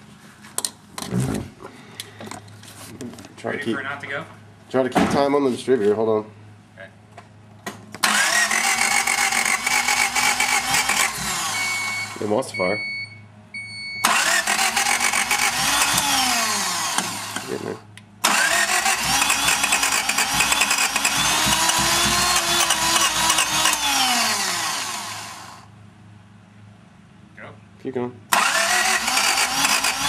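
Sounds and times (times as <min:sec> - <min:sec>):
car engine cranking and sputtering: 0:07.9 - 0:12.2, 0:14.0 - 0:25.6, 0:28.3 - 0:30.0.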